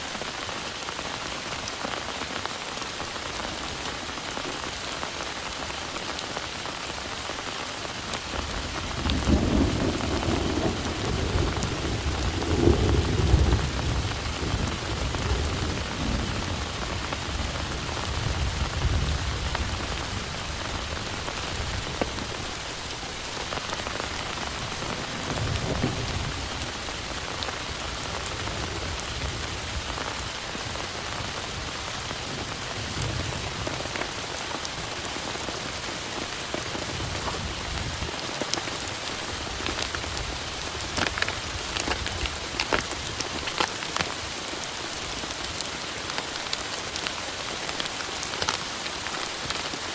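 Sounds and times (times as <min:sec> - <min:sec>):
heavy rain: 0:00.0 - 0:49.9
raindrops tapping: 0:07.5 - 0:31.7, 0:32.5 - 0:49.9
thunder rumbles: 0:08.3 - 0:22.4, 0:23.6 - 0:34.2.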